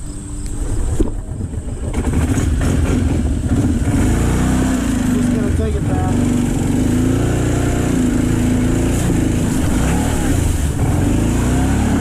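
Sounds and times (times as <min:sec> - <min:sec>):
engine revving: 0:00.7 - 0:12.0.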